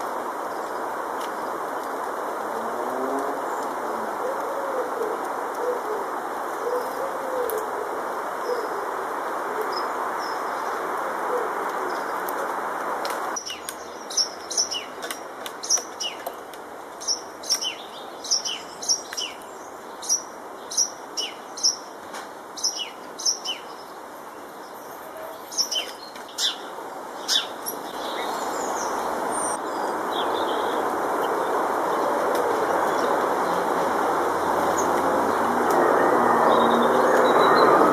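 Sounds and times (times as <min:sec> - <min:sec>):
bird chirping: 0:13.4 - 0:16.4, 0:17.0 - 0:21.9, 0:22.6 - 0:37.9.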